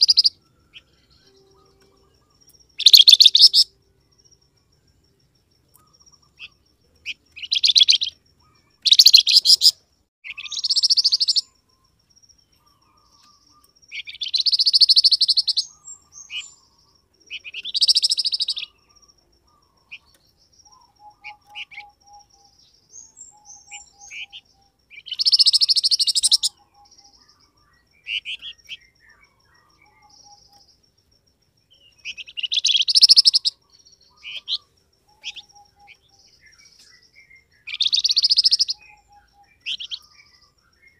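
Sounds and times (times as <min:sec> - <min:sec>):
songbird trilling: 0:00.0 - 0:03.8, 0:05.7 - 0:30.8, 0:31.7 - 0:40.9
soft short bird chirps: 0:31.8 - 0:40.9.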